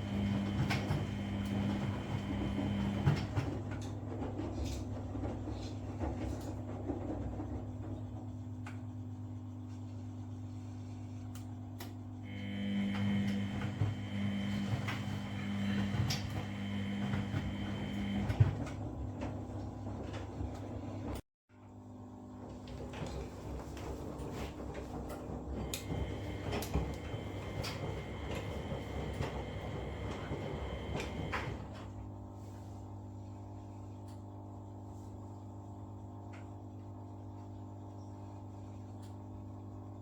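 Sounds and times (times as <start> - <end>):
washing machine drum turning: 0.0 - 3.7, 12.3 - 20.6, 23.0 - 31.8
laundry and water tumbling: 0.0 - 5.4, 12.4 - 21.2, 22.6 - 31.7.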